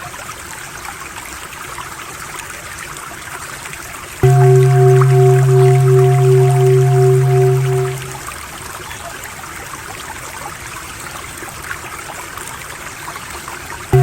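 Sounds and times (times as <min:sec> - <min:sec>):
low humming drone: 0:04.2 - 0:08.2
trickling running water: 0:04.2 - 0:08.2.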